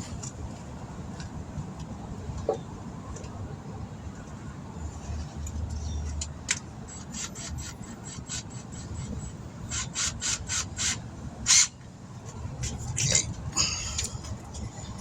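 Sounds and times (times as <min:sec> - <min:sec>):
tire reamer scraping rasps: 0:04.8 - 0:15.0.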